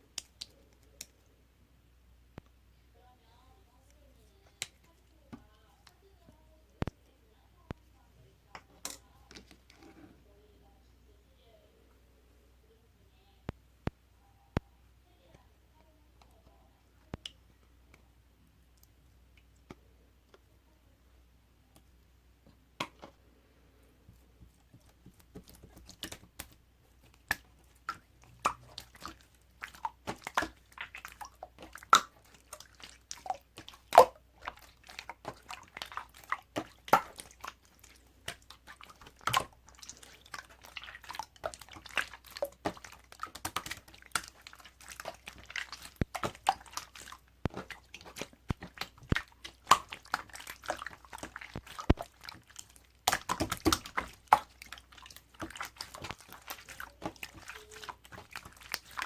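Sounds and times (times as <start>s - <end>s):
crunchy chewing: 24.6s - 59.0s.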